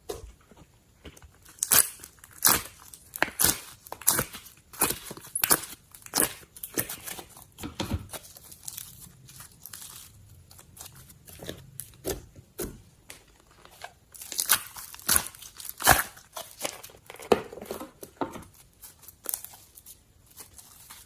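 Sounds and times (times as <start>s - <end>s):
slime popping and squelching: 1.4s - 13.3s, 14.1s - 21.0s.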